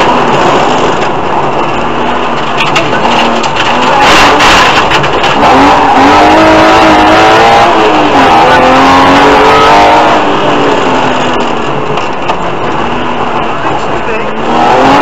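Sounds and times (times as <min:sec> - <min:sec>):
tyres on rough gravel: 0:00.0 - 0:07.2
rally car engine accelerating: 0:00.0 - 0:15.0.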